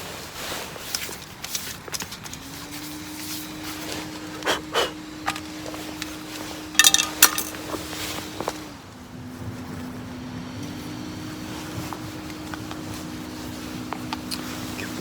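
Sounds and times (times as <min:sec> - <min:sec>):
ringing metallic clinks: 0:06.8 - 0:07.6.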